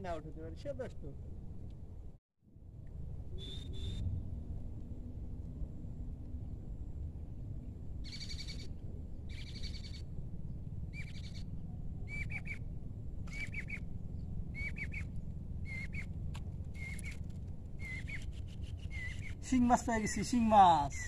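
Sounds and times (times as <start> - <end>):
low rumble: 0.0 - 21.0
bird calling: 8.0 - 8.7, 9.3 - 10.1, 10.9 - 11.5, 12.1 - 12.7, 13.3 - 13.9, 14.5 - 21.0.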